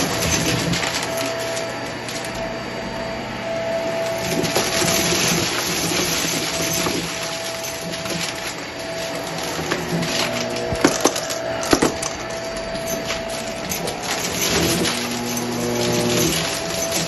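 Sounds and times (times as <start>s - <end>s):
vacuum cleaner motor whine: 0.0s - 17.0s
beads rattling up nozzle: 4.1s - 17.0s.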